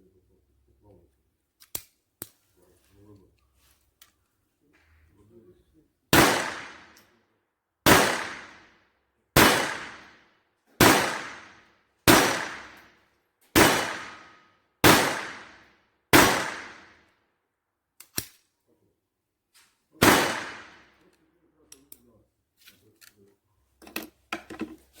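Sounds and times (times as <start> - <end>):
small clicks: 1.6 - 2.4
pistol shots: 6.1 - 7.0, 7.8 - 8.7, 9.4 - 10.2, 10.8 - 12.9, 13.5 - 17.0, 20.0 - 21.0.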